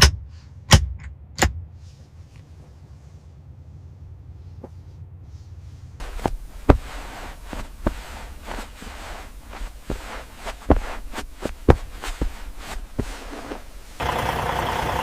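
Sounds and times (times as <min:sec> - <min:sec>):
low steady hum: 0:00.0 - 0:15.0
rustling hiss: 0:01.9 - 0:14.0
knocks and thumps: 0:06.0 - 0:13.9.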